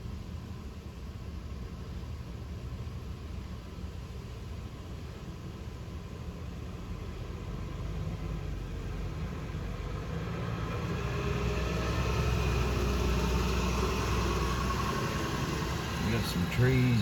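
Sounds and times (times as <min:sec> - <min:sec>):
heavy vehicle engine approaching: 0:07.5 - 0:17.0.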